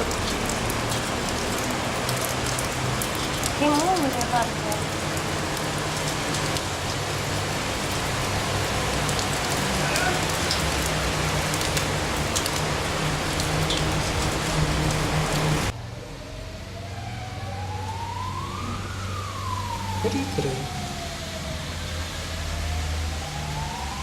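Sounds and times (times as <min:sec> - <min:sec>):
rushing water: 0:00.0 - 0:15.8.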